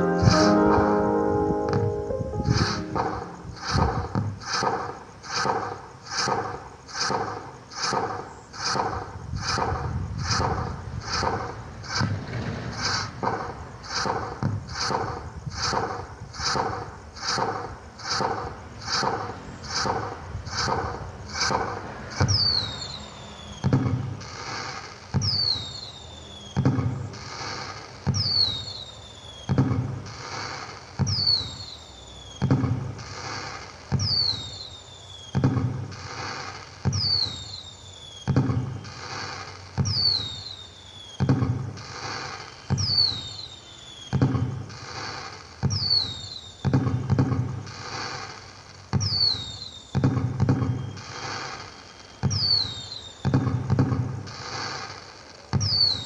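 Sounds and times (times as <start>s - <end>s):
falling whistle: 0.0s - 4.0s.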